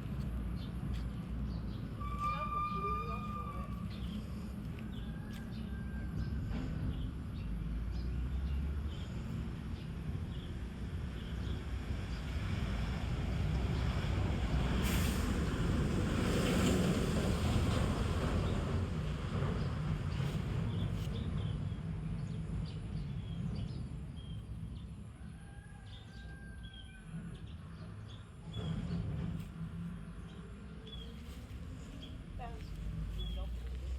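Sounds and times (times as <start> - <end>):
outdoor noise: 0.0 - 33.9.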